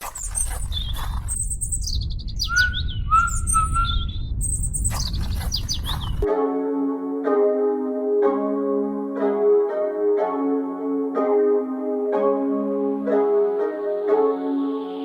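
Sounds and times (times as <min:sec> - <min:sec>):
birds chirping and singing: 0:00.0 - 0:06.3
steady low rumble: 0:00.6 - 0:06.3.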